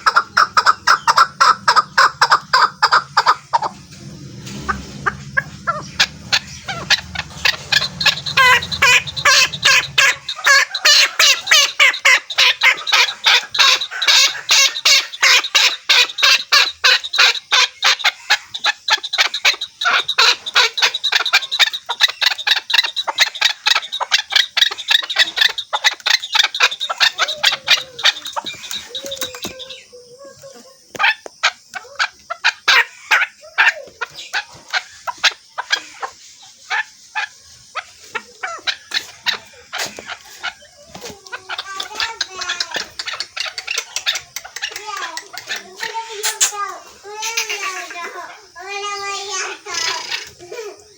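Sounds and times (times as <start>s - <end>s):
partridge calling: 0.0s - 50.9s.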